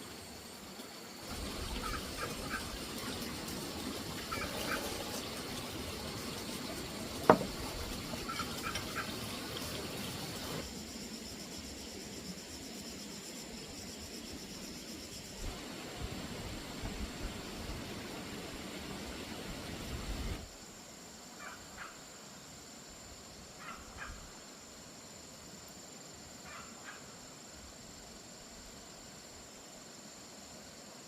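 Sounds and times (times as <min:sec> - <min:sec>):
bird calls: 0:04.2 - 0:05.4, 0:08.1 - 0:09.4
high-pitched insect drone: 0:10.6 - 0:15.4.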